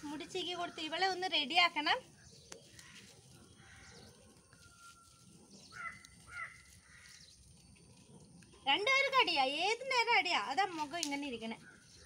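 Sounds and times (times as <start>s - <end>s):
bird calls: 0.0s - 8.8s.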